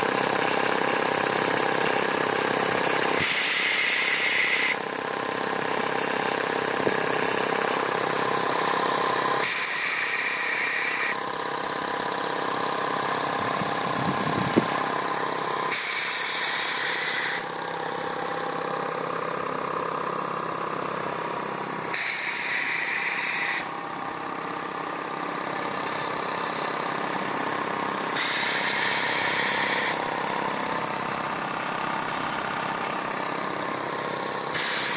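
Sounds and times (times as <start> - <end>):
compressor motor humming: 0.0 - 34.9
bursts of hissing air: 3.2 - 4.8, 9.4 - 11.2, 15.7 - 17.5, 21.8 - 23.8, 28.1 - 30.0, 34.5 - 34.9.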